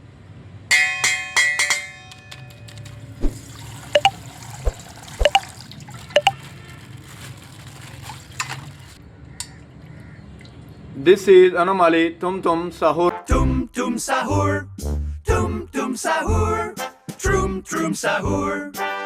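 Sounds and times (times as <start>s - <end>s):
water sloshing in plastic bag: 2.8s - 9.0s
water drip plops: 4.0s - 6.4s.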